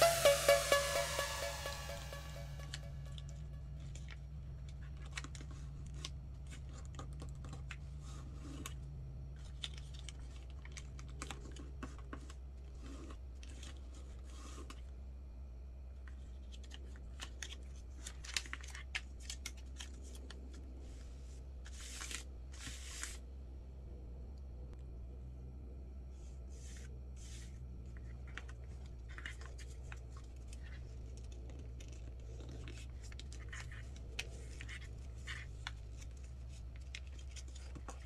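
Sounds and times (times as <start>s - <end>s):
paper being folded: 16.1s - 23.2s, 26.5s - 38.0s.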